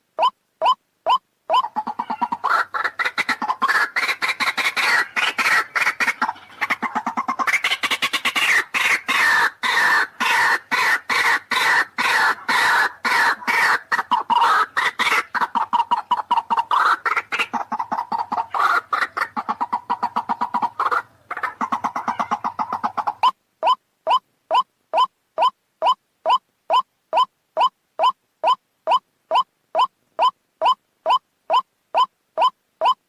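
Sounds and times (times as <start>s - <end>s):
waterhen harsh croaking calls: 0.2s - 26.8s.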